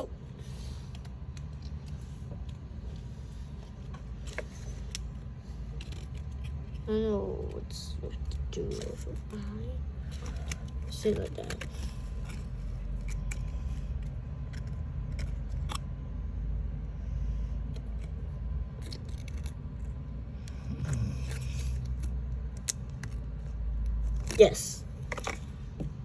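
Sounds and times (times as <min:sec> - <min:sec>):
card pieces scraping and rustling: 0:00.4 - 0:09.4, 0:17.7 - 0:25.6.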